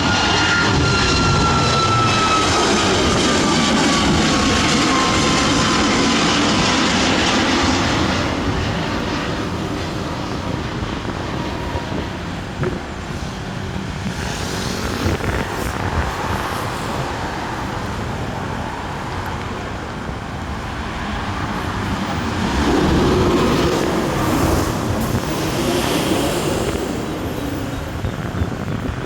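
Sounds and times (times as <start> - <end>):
road traffic noise: 0.0 - 29.0
vehicle passing by: 21.1 - 28.5.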